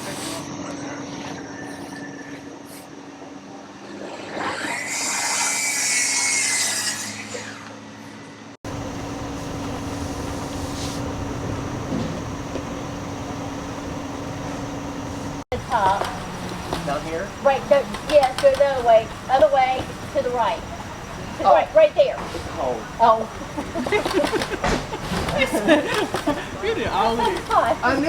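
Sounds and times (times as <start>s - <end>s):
steady low hum: 7.1s - 28.0s
power saw whining and cutting: 8.7s - 21.6s.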